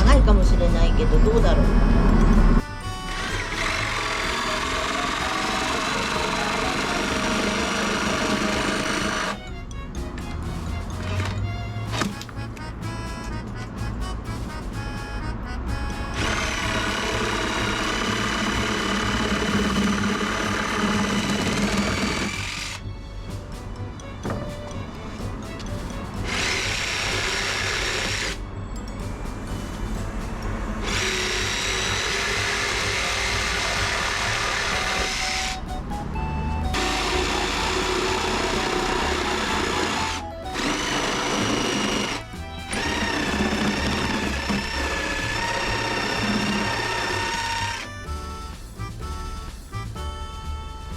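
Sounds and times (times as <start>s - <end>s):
background music: 0.0s - 50.9s
power tool motor whining: 1.0s - 9.5s, 10.8s - 12.4s, 16.0s - 22.9s, 24.2s - 28.4s, 30.8s - 48.7s
jigsaw cutting wood: 1.7s - 9.4s, 11.0s - 12.2s, 16.1s - 22.8s, 26.2s - 28.4s, 30.8s - 35.6s, 36.7s - 47.9s.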